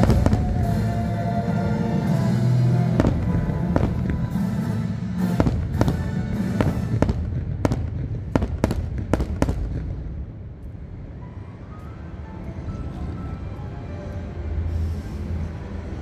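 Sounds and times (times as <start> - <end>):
background show music: 0.0 - 7.8
fireworks bangs and pops: 3.0 - 4.4, 5.2 - 10.8.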